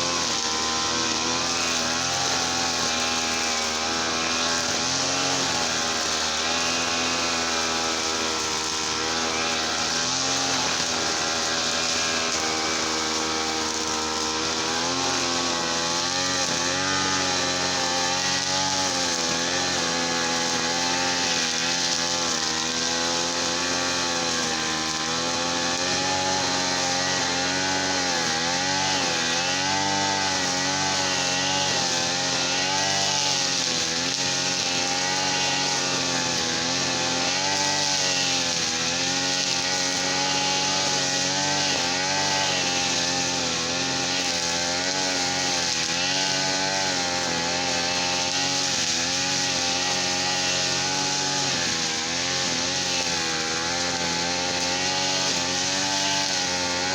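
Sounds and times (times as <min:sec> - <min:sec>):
brush cutter engine running: 0:00.0 - 0:56.9.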